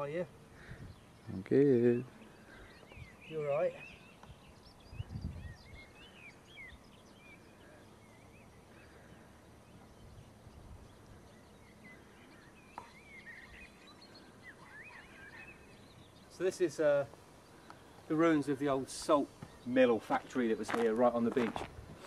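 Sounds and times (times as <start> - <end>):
small birds chirping: 0.0 - 22.0
steady outdoor hiss: 0.0 - 22.0.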